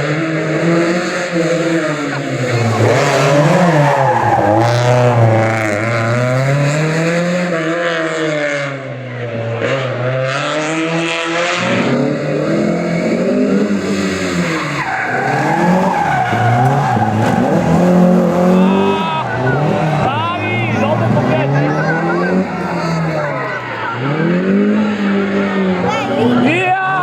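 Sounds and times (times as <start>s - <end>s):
rally car engine revving: 0.0s - 27.0s
tyres squealing and skidding: 0.9s - 7.0s, 13.5s - 27.0s.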